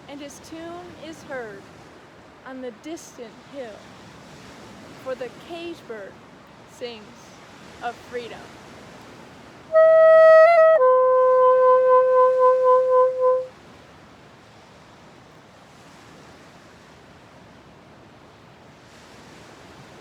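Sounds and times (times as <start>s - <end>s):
wind instrument note wobbling: 9.7s - 13.5s.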